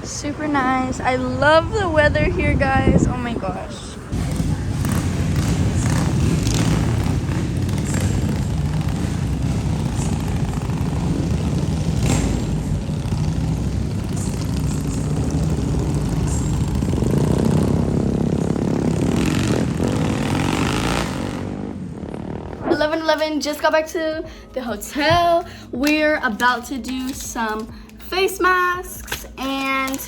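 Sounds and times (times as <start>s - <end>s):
vehicle engine rumbling: 0.0s - 23.2s.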